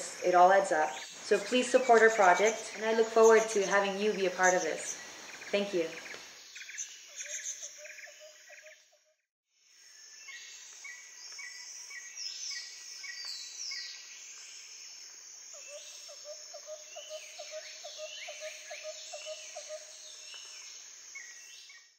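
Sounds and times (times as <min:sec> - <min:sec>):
insects hissing: 0:00.0 - 0:08.7, 0:09.6 - 0:21.9
birds calling: 0:00.0 - 0:09.1, 0:15.6 - 0:20.6.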